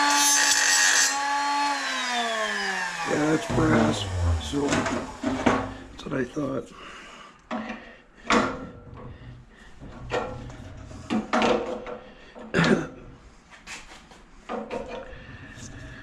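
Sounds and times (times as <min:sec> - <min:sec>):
metal scrap clunking and scraping: 0:03.3 - 0:06.0, 0:09.8 - 0:12.0.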